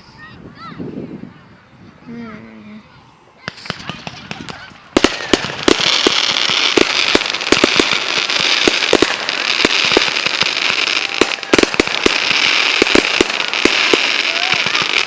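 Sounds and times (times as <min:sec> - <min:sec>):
fireworks crackling and banging: 0:03.4 - 0:15.0.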